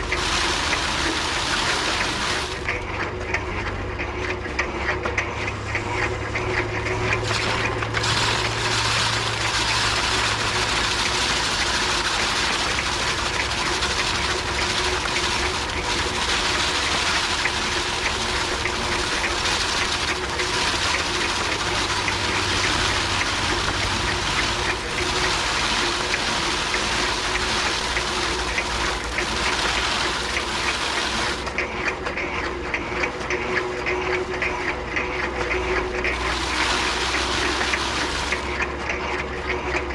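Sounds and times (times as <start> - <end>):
continuous rushing noise: 0.0 - 2.9
thresher drum humming: 0.0 - 39.9.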